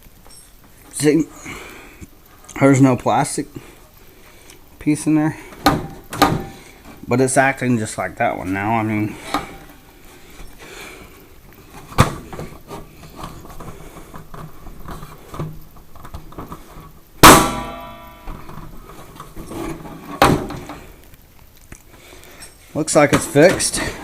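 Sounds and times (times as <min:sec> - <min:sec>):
knocks and clatter of parts: 0:00.1 - 0:01.0, 0:05.5 - 0:07.1, 0:11.7 - 0:21.0, 0:22.4 - 0:24.0
ringing clank: 0:17.2 - 0:18.4.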